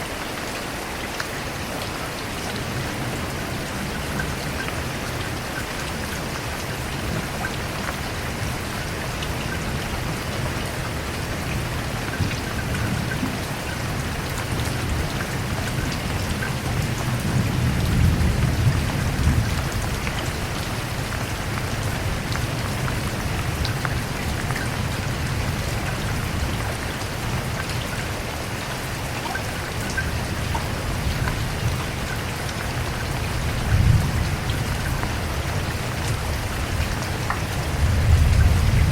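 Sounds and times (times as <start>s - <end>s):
rain falling: 0.0s - 38.9s
thunder rumble: 32.8s - 38.9s.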